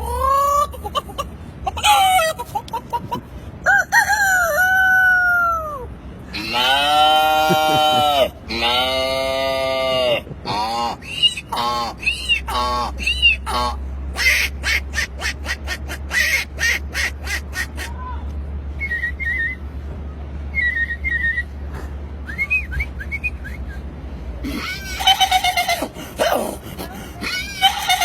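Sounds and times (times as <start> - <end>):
person whistling birdsong imitation: 20.6 - 21.6, 22.2 - 23.9.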